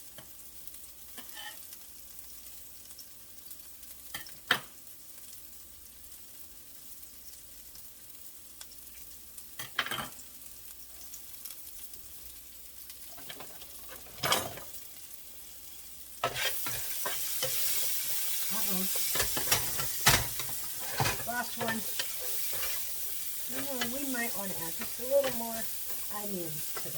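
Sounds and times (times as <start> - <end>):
vegetables sizzling in a pan: 0.0 - 26.9.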